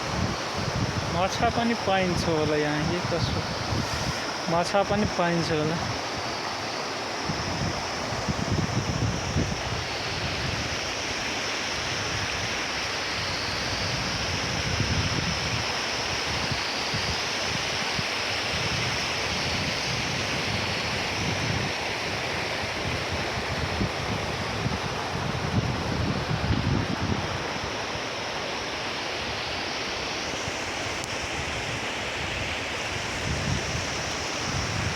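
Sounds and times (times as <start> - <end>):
wind buffeting microphone: 0.0 - 6.4, 7.2 - 10.8, 13.6 - 27.8, 31.3 - 34.9
river water rushing: 0.0 - 13.6.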